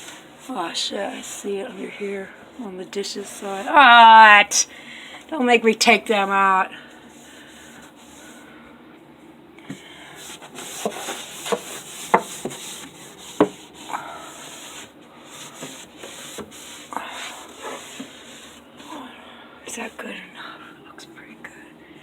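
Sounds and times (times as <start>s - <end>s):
hand scrubbing and wiping: 3.1s - 4.4s, 7.0s - 8.4s, 10.1s - 19.0s.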